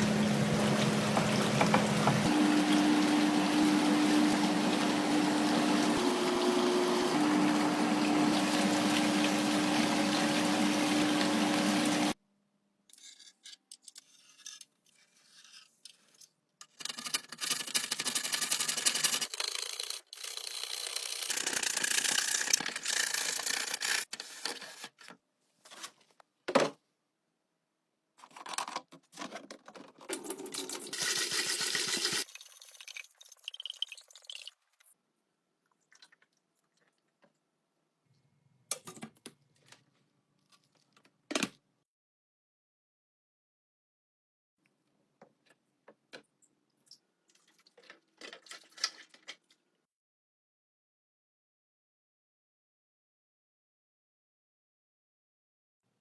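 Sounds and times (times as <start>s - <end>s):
running water: 0.0s - 12.2s
water splashing: 0.0s - 12.2s.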